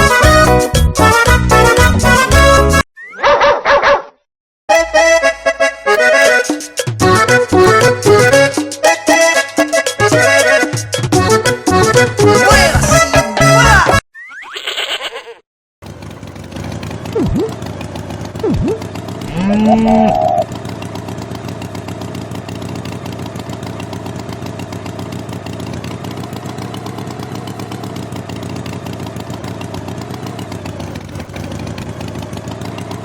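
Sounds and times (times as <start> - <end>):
tractor engine running: 15.8 - 33.0
loud pitched call: 19.3 - 20.5.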